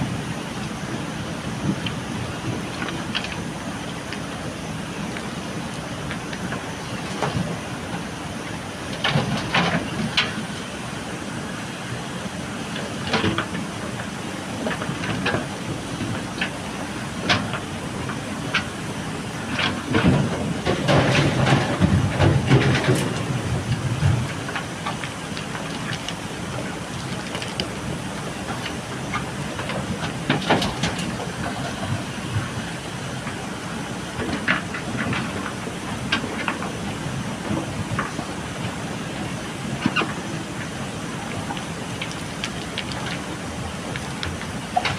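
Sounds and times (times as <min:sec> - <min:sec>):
diesel engine running: 0:00.0 - 0:44.9
gravel and steel bucket clatters: 0:19.4 - 0:38.8, 0:39.7 - 0:44.9.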